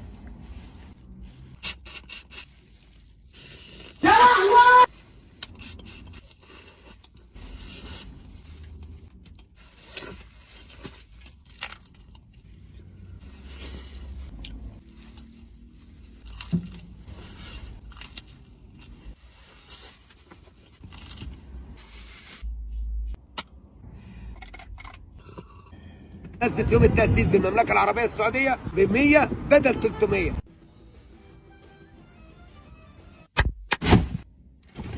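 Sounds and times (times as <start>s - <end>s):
person chewing cake: 0.0s - 4.0s, 4.9s - 21.4s
low steady rumble: 5.0s - 27.7s.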